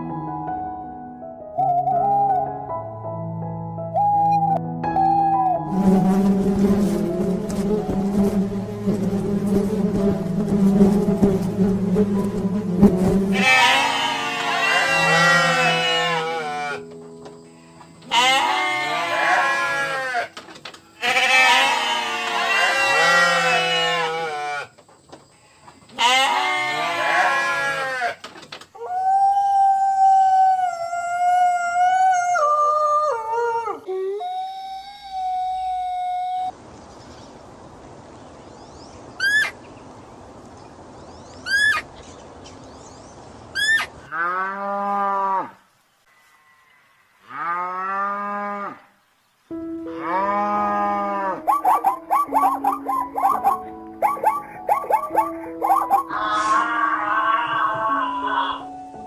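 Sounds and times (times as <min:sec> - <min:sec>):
whistled tone stepping down: 0:03.9 - 0:05.5
goats bleating: 0:13.3 - 0:16.8, 0:18.1 - 0:20.3, 0:21.0 - 0:24.7, 0:26.0 - 0:28.2, 0:56.1 - 0:58.7.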